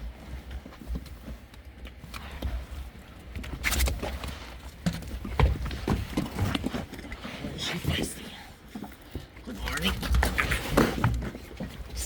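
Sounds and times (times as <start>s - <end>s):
sheep hooves clattering: 0.0s - 12.0s.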